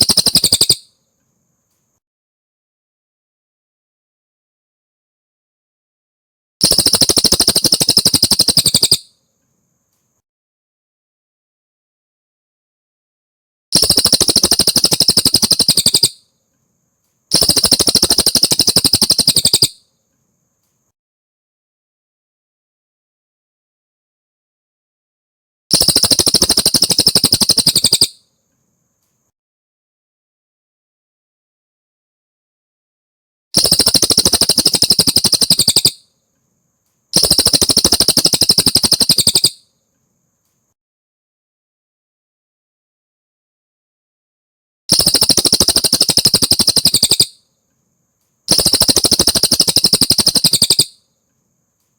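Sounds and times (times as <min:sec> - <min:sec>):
bird trilling: 0:00.0 - 0:00.9, 0:06.6 - 0:09.0, 0:13.8 - 0:16.2, 0:17.3 - 0:19.8, 0:25.7 - 0:28.2, 0:33.6 - 0:36.0, 0:37.2 - 0:39.6, 0:44.9 - 0:47.3, 0:48.5 - 0:50.9.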